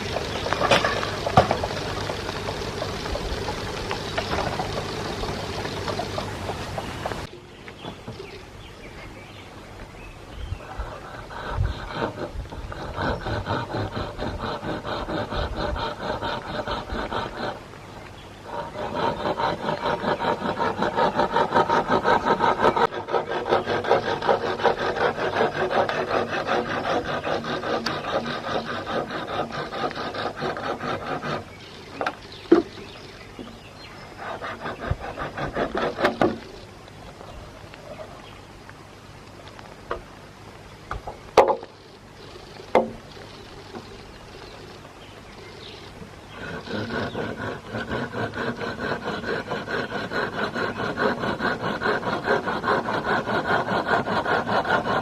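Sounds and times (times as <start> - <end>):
sharp knocks: 0.0 - 2.6
hand tool rasping on wood: 0.0 - 7.3, 10.7 - 17.7, 18.4 - 32.7, 33.4 - 36.6, 46.3 - 55.0.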